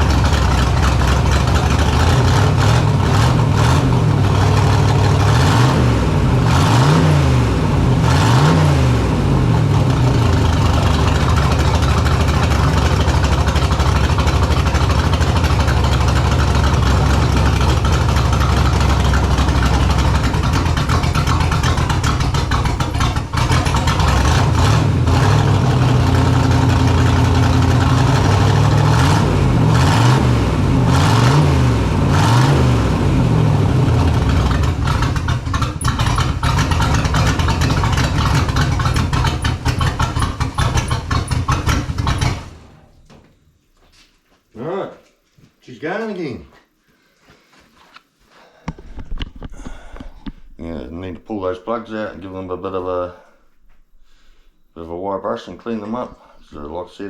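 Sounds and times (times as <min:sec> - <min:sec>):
car engine throttle blips: 0:00.0 - 0:43.0.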